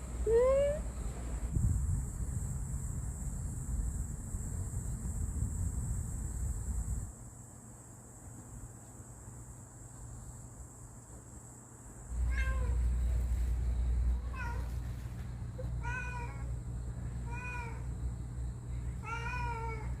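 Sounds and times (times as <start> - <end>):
cat meowing: 12.2 - 12.8, 14.2 - 14.7, 19.0 - 20.0.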